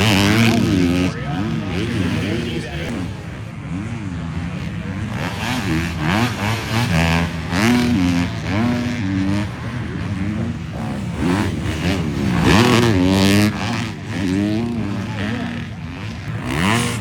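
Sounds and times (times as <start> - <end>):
motocross bikes revving past: 0.0 - 17.0.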